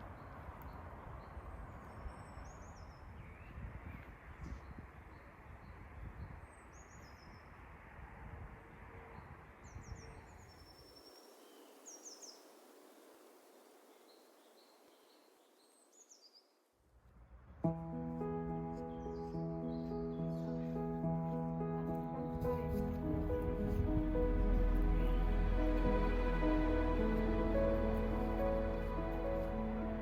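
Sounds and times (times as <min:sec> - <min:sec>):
wind rumbling on microphone: 0:00.0 - 0:15.2, 0:21.6 - 0:30.0.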